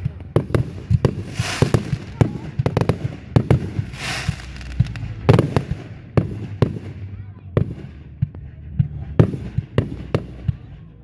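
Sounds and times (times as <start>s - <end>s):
hissing crackle of fireworks: 0.0s - 8.3s
fireworks banging: 0.0s - 10.8s.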